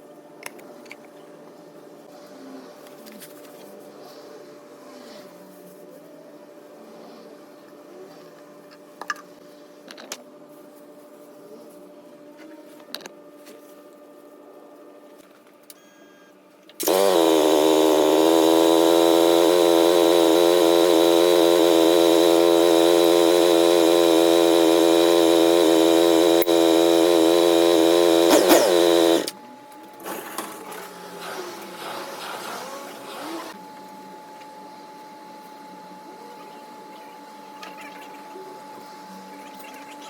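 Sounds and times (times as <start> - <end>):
motorcycle engine starting and idling: 16.8 - 29.4.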